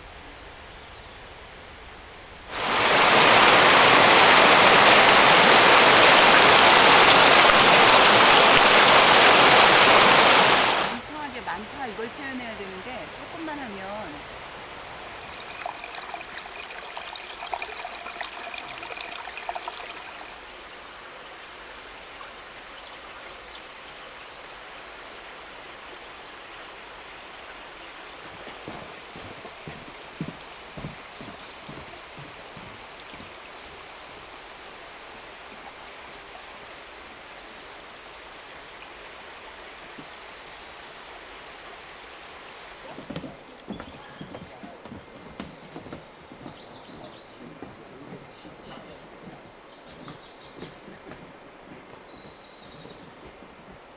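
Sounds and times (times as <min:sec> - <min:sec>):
stream rushing over rocks: 0:02.4 - 0:53.9
soft low knocks: 0:42.9 - 0:53.9.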